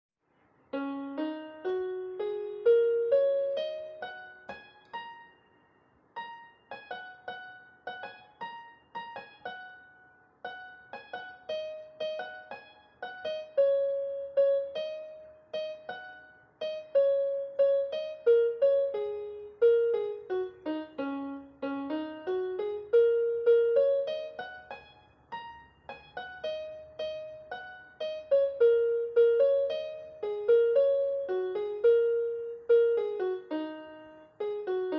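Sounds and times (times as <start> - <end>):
gentle piano melody: 0.7 - 34.9.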